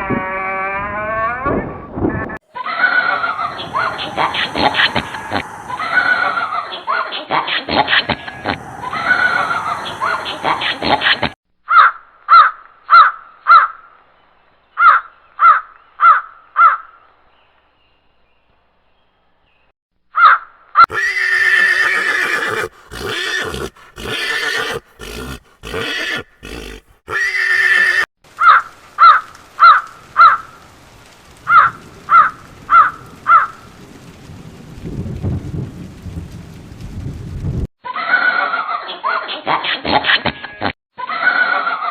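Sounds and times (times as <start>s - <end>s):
animal calls: 2.5s - 13.7s, 20.2s - 30.4s.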